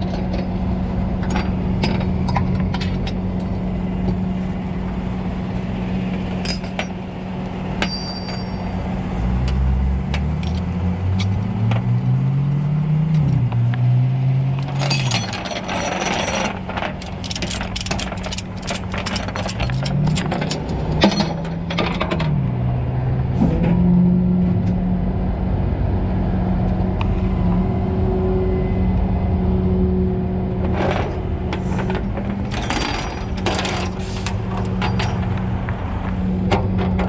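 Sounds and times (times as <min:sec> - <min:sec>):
metallic clicks and rattles: 0:14.6 - 0:22.3.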